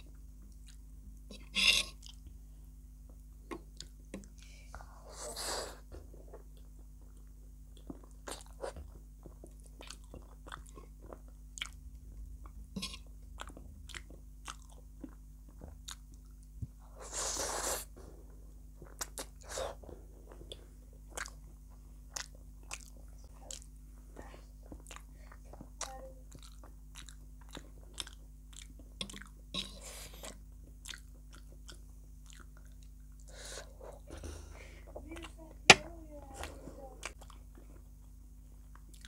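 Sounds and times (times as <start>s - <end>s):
chewing noodles with mouth smacks: 6.0s - 11.8s, 12.4s - 16.5s, 18.8s - 23.8s, 24.6s - 34.1s, 37.0s - 39.0s.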